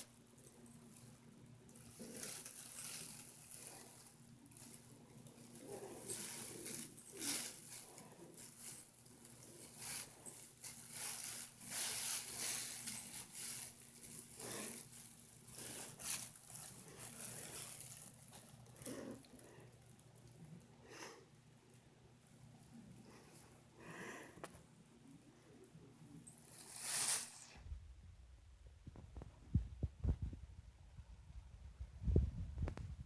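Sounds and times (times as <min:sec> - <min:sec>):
bag rustling and crinkling: 0:00.0 - 0:20.4, 0:26.3 - 0:27.5.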